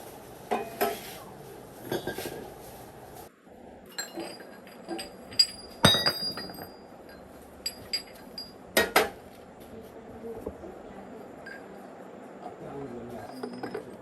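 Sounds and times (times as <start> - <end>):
metal objects clinking: 3.9 - 9.0, 13.3 - 14.0.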